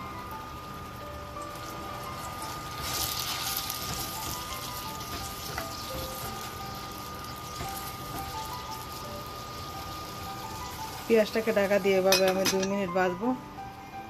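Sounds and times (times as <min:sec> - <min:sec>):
paste sizzling in hot oil: 0:01.4 - 0:12.2.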